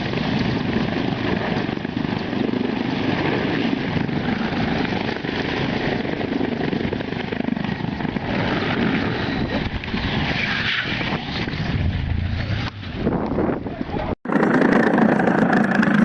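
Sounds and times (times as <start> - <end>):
helicopter engine and rotor drone: 0.0 - 10.3.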